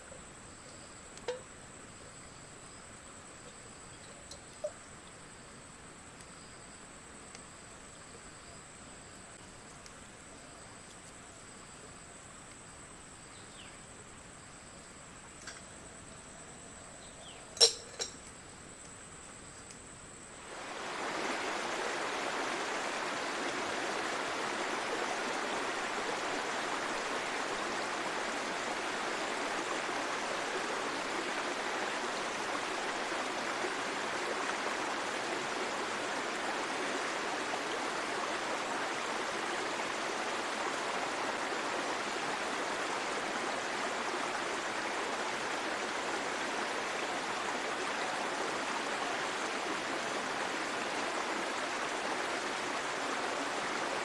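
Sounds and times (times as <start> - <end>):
rushing water: 20.3 - 54.0.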